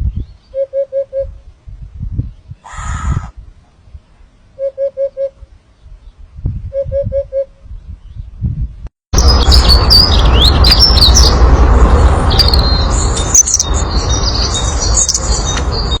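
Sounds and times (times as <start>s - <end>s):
steady rumbling noise: 1.3s - 4.7s, 5.3s - 15.9s
small birds chirping: 12.3s - 16.0s.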